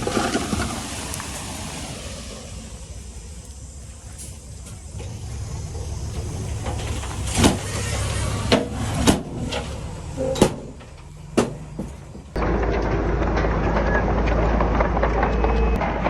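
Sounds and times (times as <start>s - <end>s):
diesel engine running: 0.0s - 16.0s
sharp knocks: 10.3s - 13.7s.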